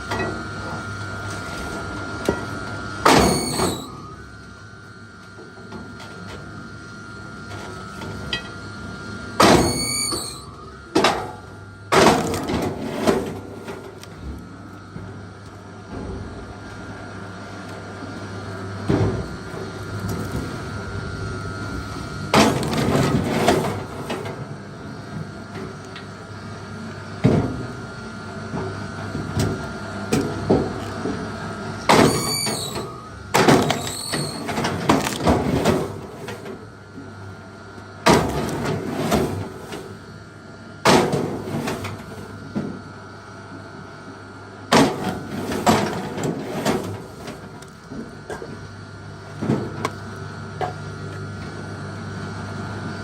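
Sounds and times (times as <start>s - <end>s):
brief squeak: 9.6s - 10.5s.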